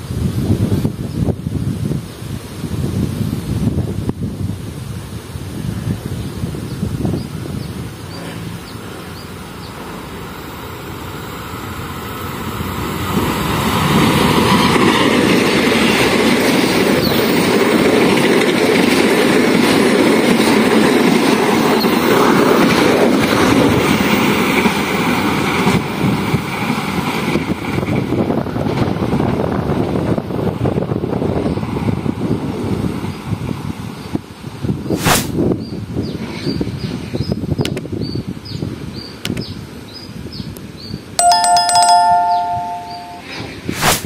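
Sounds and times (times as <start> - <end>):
rumble of wheels on rail: 0.0 - 41.0
passenger train passing: 7.4 - 34.6.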